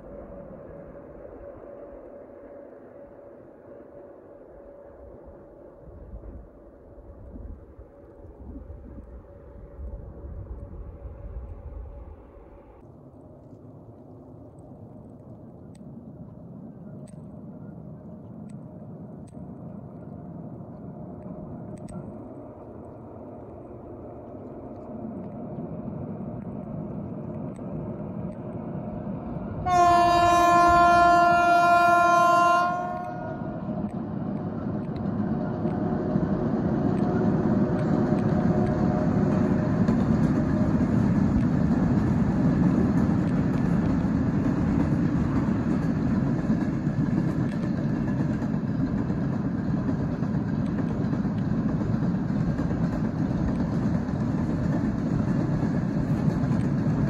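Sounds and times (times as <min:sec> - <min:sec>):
horn blast: 0:29.6 - 0:33.6.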